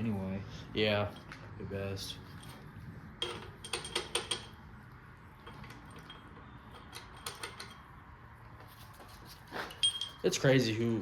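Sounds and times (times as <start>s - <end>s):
metallic clinks of tools: 9.6s - 10.4s.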